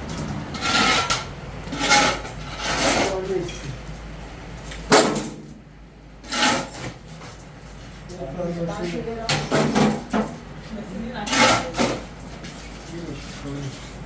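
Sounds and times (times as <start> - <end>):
objects knocking and scraping: 0.0 - 5.4, 9.3 - 10.4, 11.2 - 14.0.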